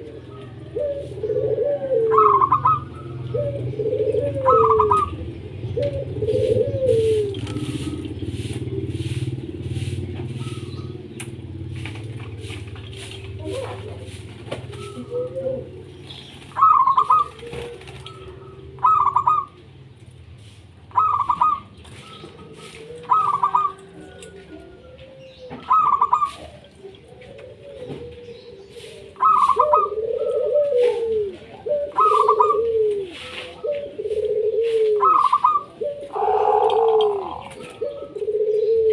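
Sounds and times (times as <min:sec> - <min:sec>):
dove cooing: 0:00.0 - 0:38.9
lower falling coos: 0:36.0 - 0:38.9.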